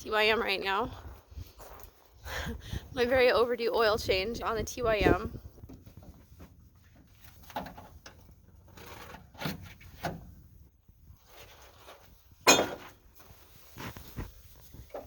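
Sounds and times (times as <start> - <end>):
sharp metal clank: 12.5 - 12.9.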